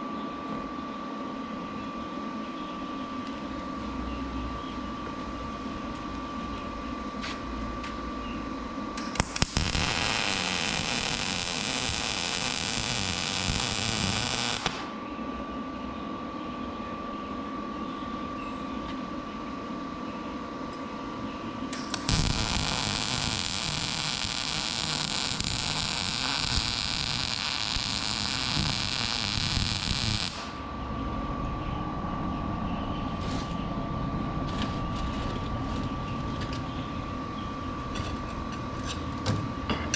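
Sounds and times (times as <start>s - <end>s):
steady high hum: 0.0s - 39.9s
electric arc welding crackle: 9.0s - 15.0s, 21.7s - 30.6s.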